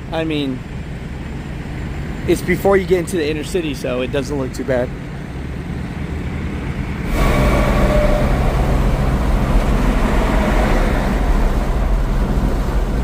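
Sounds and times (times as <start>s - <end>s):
heavy vehicle engine and road noise: 0.0s - 13.0s
faint whine: 6.6s - 13.0s.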